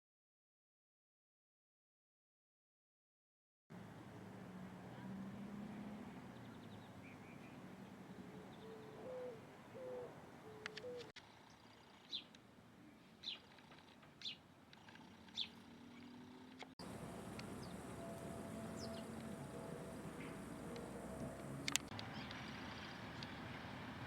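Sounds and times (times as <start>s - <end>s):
bird low hooting: 6.4s - 11.2s, 15.0s - 23.6s
bird sharp high chirps: 8.5s - 11.1s, 14.2s - 14.4s, 15.1s - 15.7s, 17.3s - 22.4s.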